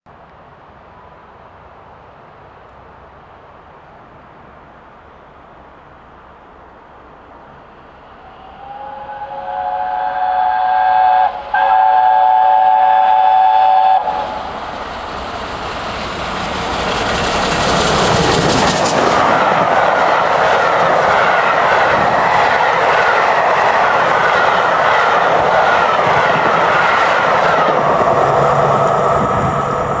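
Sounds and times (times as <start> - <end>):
locomotive passing with loud rush: 7.1 - 30.0
steam locomotive whistle: 8.2 - 14.6.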